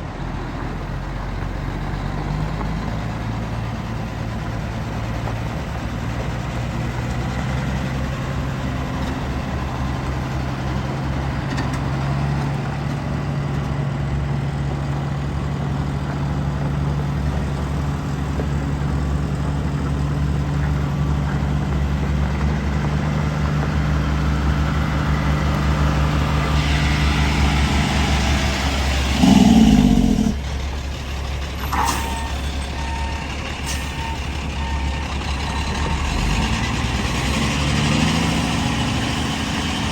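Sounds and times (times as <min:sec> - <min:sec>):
diesel truck engine idling: 0:13.9 - 0:37.2.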